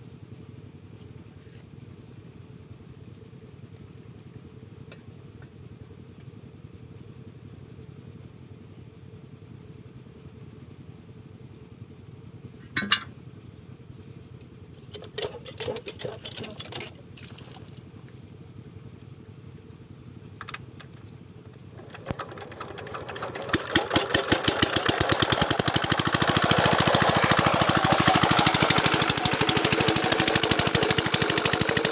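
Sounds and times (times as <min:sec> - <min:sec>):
engine knocks and clatters: 0:14.3 - 0:19.1, 0:20.1 - 0:31.9
diesel engine running: 0:20.4 - 0:31.9.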